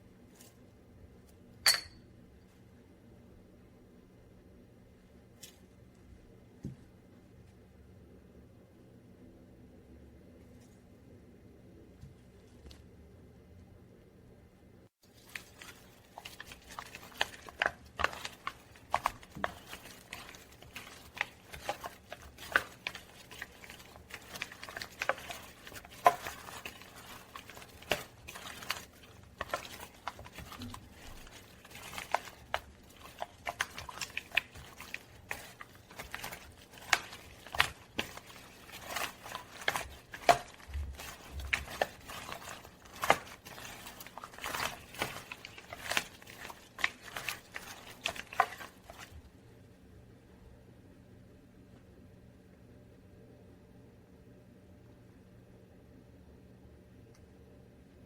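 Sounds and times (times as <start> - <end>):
kitchen utensils and dishes clicking: 1.7 - 2.0.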